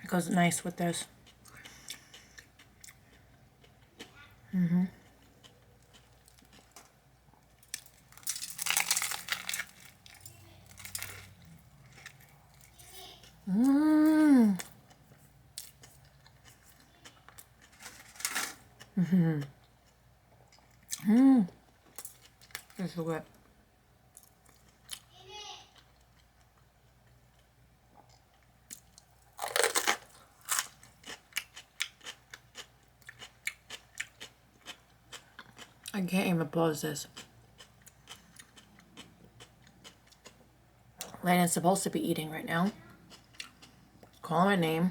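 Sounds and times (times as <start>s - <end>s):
crunching toasted sandwich: 5.5s - 12.8s, 15.6s - 18.8s, 28.8s - 35.7s.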